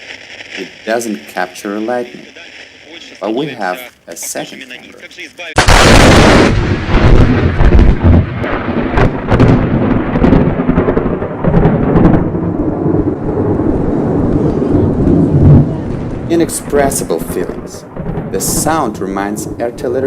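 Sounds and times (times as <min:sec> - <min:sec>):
lightning crack: 0:00.0 - 0:03.8, 0:05.6 - 0:20.0
rolling thunder rumble: 0:05.6 - 0:20.0.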